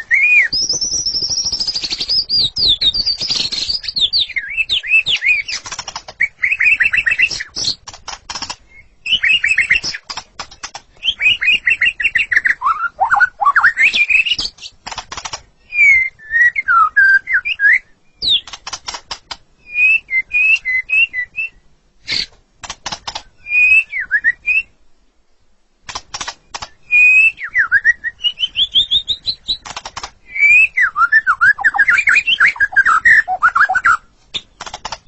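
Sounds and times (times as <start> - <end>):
songbird whistling: 0.0 - 5.6, 6.2 - 7.8, 8.7 - 10.0, 11.0 - 14.7, 15.6 - 18.5, 19.6 - 22.3, 23.4 - 24.7, 26.8 - 29.6, 30.2 - 34.4
bird clicking rattles: 5.2 - 6.2, 7.6 - 8.6, 9.8 - 10.9, 14.8 - 15.5, 18.4 - 19.4, 22.6 - 23.3, 25.9 - 26.8, 29.6 - 30.2, 34.5 - 35.0.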